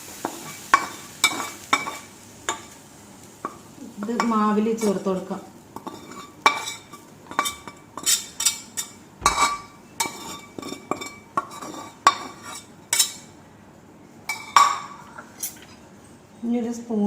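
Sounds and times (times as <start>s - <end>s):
metal spoon scraping metal pan: 5.8s - 13.2s.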